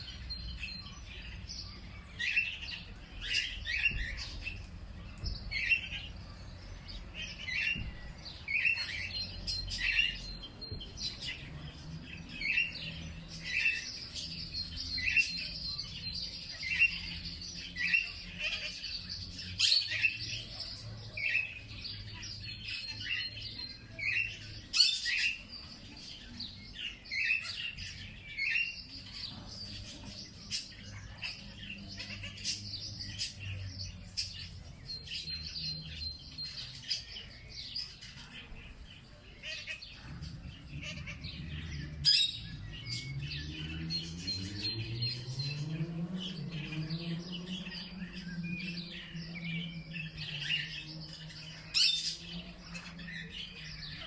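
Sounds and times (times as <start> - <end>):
birds twittering: 0.0 - 54.0.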